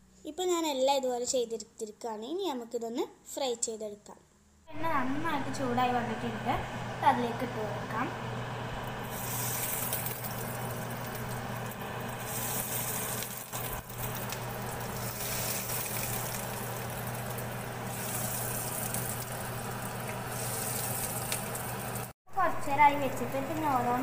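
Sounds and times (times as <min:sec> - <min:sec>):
low steady hum: 0:04.6 - 0:24.0
food sizzling in oil: 0:08.2 - 0:24.0.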